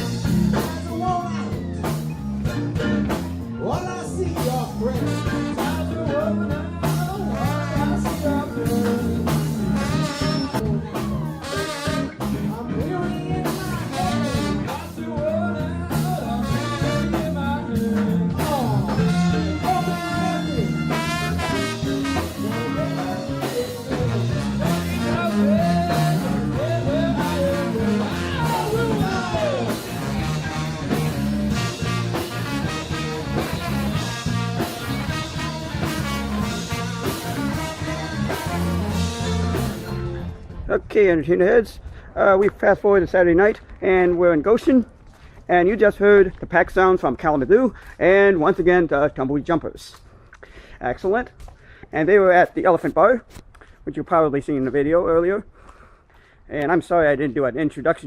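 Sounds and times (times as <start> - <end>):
person singing: 0.0 - 40.2
live band playing: 0.0 - 40.7.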